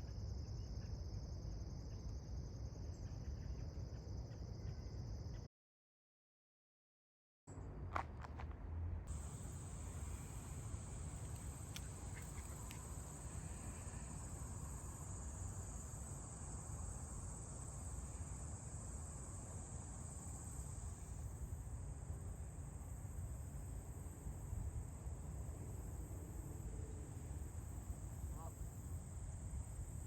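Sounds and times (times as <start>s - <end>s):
crickets chirping: 0.0s - 5.5s, 9.1s - 30.0s.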